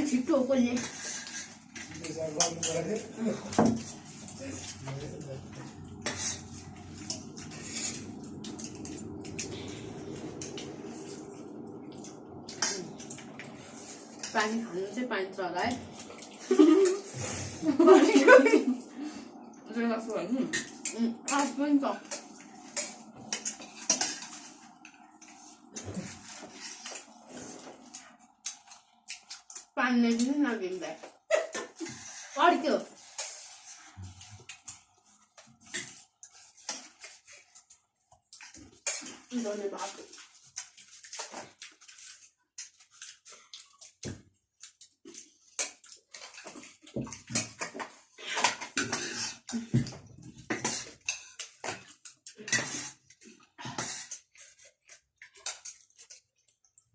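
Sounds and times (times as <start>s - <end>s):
spoons scraping bowls: 0.5s - 3.1s, 3.8s - 18.8s, 19.8s - 30.6s, 45.5s - 49.7s, 50.4s - 56.2s.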